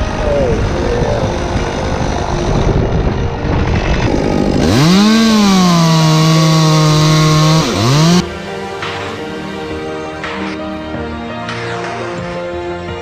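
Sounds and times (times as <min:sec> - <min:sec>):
chainsaw revving: 0:03.8 - 0:08.2.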